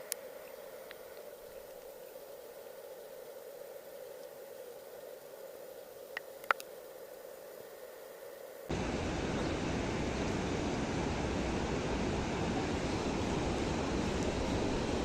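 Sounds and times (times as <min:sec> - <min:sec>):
river water rushing: 0:08.7 - 0:15.0.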